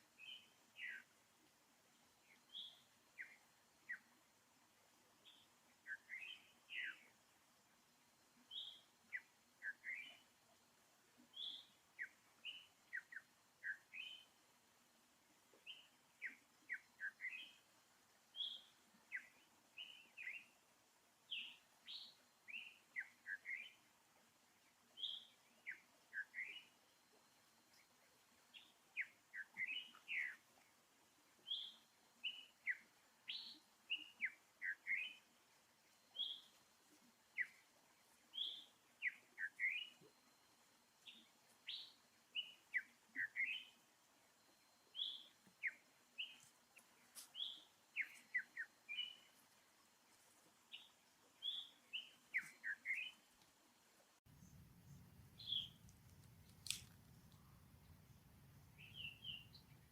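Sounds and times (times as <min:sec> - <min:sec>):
small birds chirping: 0:00.2 - 0:01.1, 0:02.3 - 0:04.2, 0:05.2 - 0:07.2, 0:08.4 - 0:10.4, 0:11.2 - 0:14.4, 0:15.6 - 0:17.7, 0:18.3 - 0:20.6, 0:21.3 - 0:23.9, 0:24.6 - 0:53.5, 0:54.2 - 0:59.9
steady low hum: 0:54.3 - 0:59.9.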